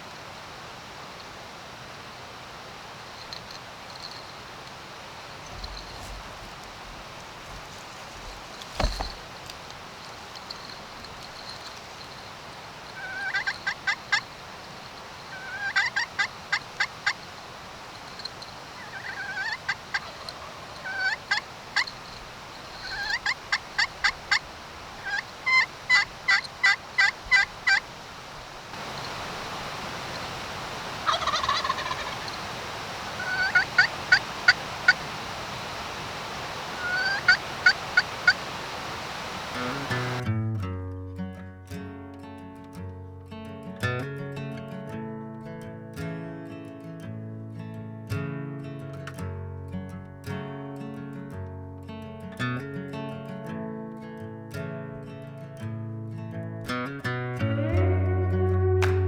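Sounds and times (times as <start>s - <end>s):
turkey gobbling: 12.9s - 14.5s, 15.2s - 40.2s.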